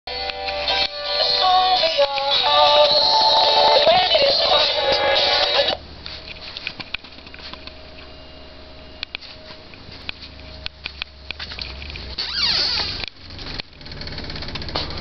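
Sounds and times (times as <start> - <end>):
door and window frames rattling: 12.2 - 15.0.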